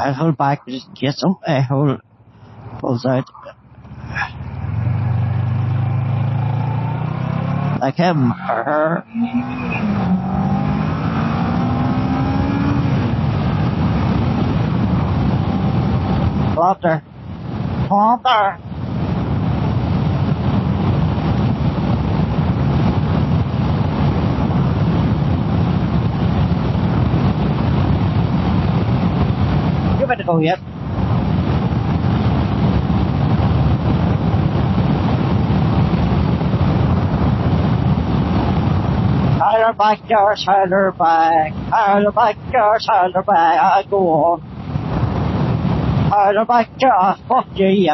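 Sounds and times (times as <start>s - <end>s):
wind and road noise: 0.0s - 47.9s
motorcycle engine and tyre rumble: 3.5s - 18.0s, 18.6s - 46.3s
motorcycle engine accelerating: 3.8s - 16.6s.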